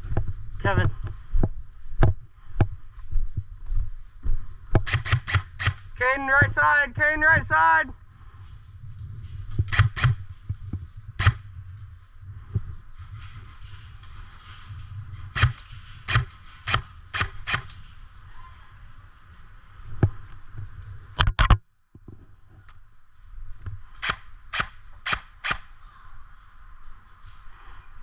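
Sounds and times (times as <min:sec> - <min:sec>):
airsoft gun shots: 0:04.8 - 0:05.9, 0:09.7 - 0:10.2, 0:11.2 - 0:11.5, 0:15.4 - 0:17.8, 0:24.0 - 0:25.7.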